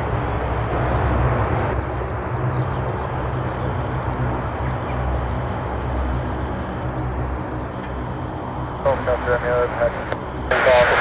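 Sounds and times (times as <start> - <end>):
aircraft engine rumble: 0.0 - 11.0.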